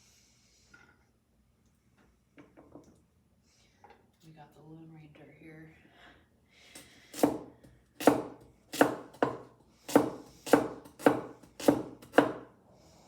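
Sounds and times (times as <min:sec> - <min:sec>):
cleaver chopping vegetables: 0:07.2 - 0:12.5.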